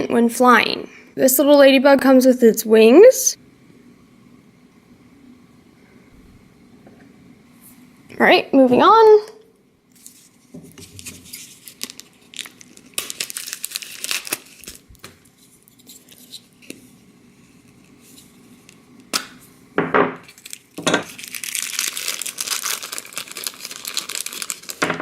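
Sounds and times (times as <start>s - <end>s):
plastic packaging crinkling and tearing: 9.9s - 16.8s, 20.2s - 25.0s.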